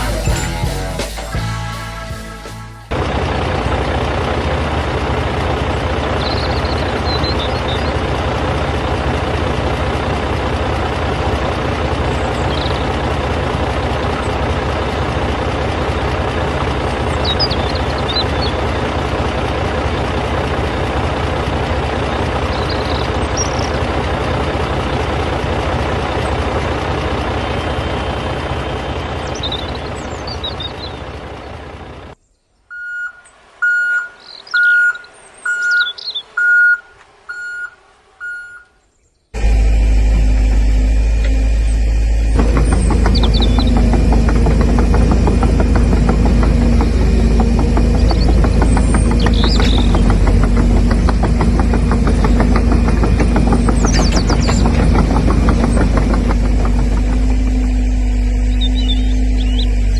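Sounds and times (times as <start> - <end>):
vehicle engine running: 0.0 - 32.2, 32.8 - 59.9
birds chirping: 5.8 - 9.2, 10.0 - 20.4, 21.0 - 24.8, 25.5 - 39.4, 41.0 - 59.9.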